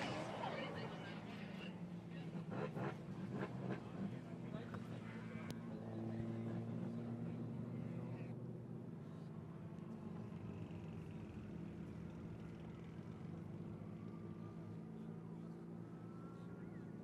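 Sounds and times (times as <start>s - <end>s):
drift car engines droning: 0.0s - 5.4s.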